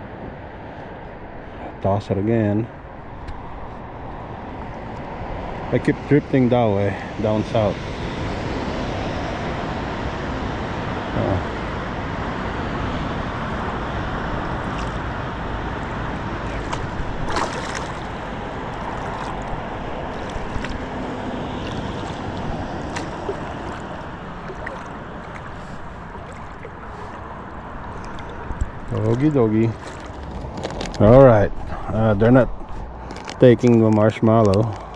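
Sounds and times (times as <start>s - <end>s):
wind: 0.0s - 34.9s
water sloshing against boat: 12.9s - 34.9s.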